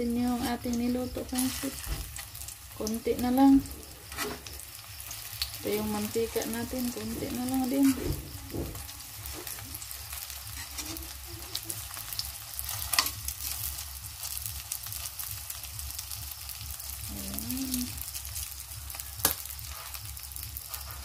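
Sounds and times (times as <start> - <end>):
spring rolls sizzling in oil: 0.0 - 21.0
metal tongs clinking on pan: 12.7 - 13.2.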